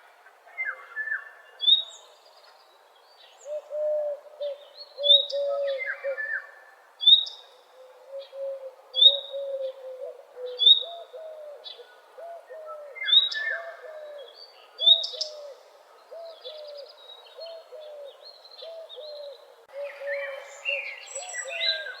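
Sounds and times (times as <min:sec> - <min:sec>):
birds singing: 0:00.6 - 0:22.0.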